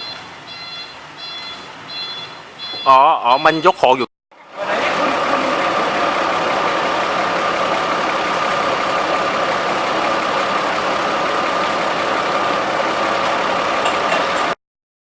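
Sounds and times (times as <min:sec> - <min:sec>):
engine running with whine: 0:04.4 - 0:14.6.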